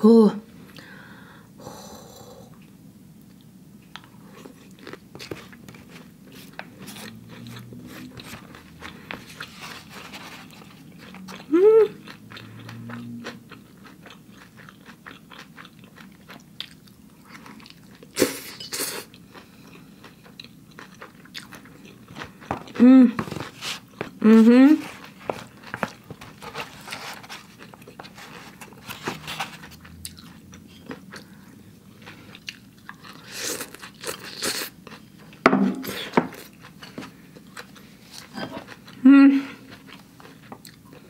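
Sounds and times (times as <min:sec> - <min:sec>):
person humming mm: 0:01.6 - 0:02.6, 0:11.4 - 0:12.0, 0:22.8 - 0:23.2, 0:24.2 - 0:24.9, 0:38.4 - 0:39.6
chewing noodles: 0:04.0 - 0:24.2, 0:24.8 - 0:39.0.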